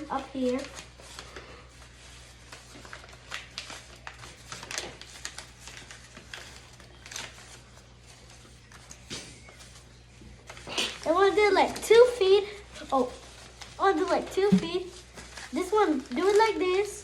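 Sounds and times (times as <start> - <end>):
paper folding and rustling: 0.0 - 17.0.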